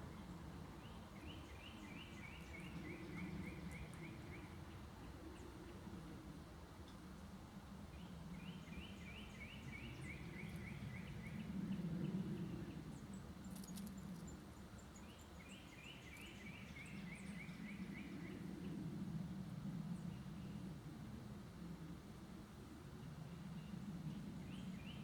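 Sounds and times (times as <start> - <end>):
songbird singing: 0.0 - 4.6, 8.0 - 18.4.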